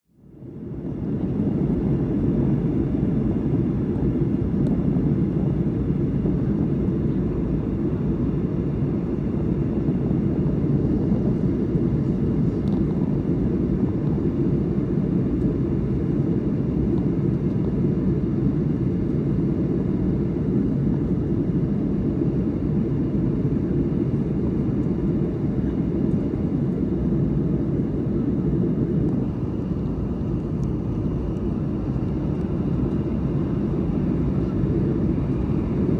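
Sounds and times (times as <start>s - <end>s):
airplane cabin rumble: 0.1s - 35.9s.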